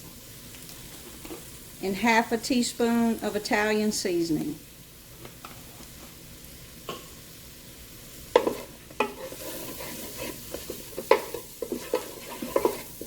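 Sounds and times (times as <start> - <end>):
vegetables sizzling in oil: 0.0 - 13.0
utensil scraping a pot: 8.4 - 13.0.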